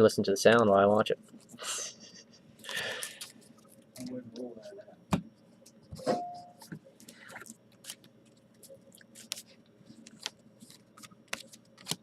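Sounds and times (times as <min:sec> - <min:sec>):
cards clicking and sliding: 0:09.2 - 0:12.0.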